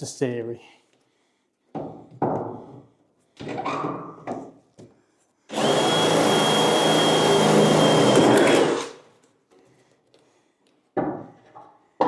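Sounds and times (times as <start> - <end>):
power tool whining: 5.5 - 9.0.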